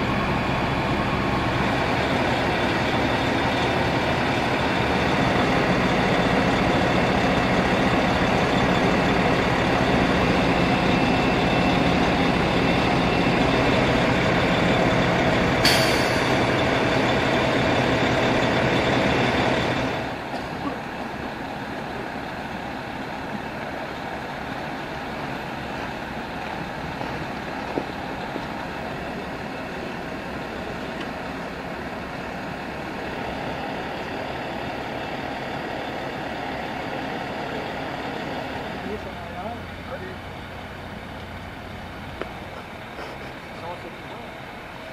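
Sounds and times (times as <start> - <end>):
fire truck engine idling: 0.0 - 44.9
short sharp hiss: 15.6 - 16.3.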